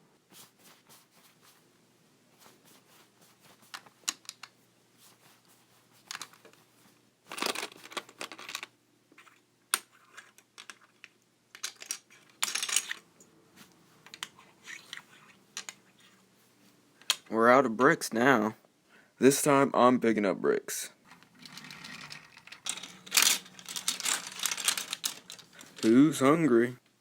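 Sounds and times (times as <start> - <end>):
plastic bricks clicking: 21.1 - 25.9
bricks rattling: 21.1 - 26.0.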